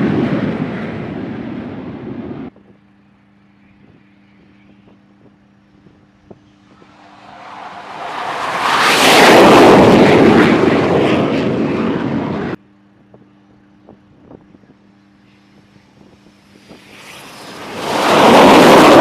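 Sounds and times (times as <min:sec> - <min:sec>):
jet engine roar: 0:00.0 - 0:02.5, 0:06.6 - 0:12.6, 0:16.2 - 0:19.0.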